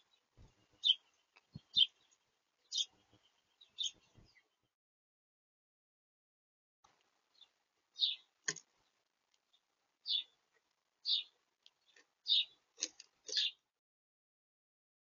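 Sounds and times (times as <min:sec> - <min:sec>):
small birds chirping: 0:00.0 - 0:04.7, 0:06.9 - 0:13.8.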